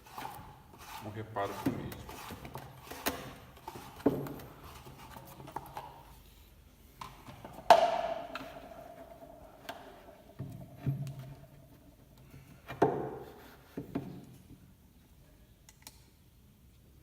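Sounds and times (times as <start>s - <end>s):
knocks and clatter of parts: 7.0s - 14.2s.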